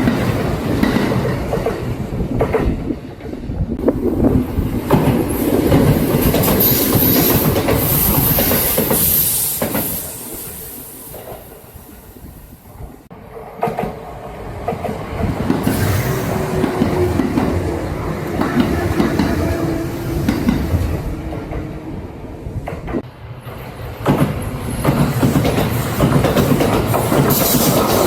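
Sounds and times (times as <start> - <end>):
train wheels clattering over rail joints: 4.8 - 10.2, 22.6 - 28.0.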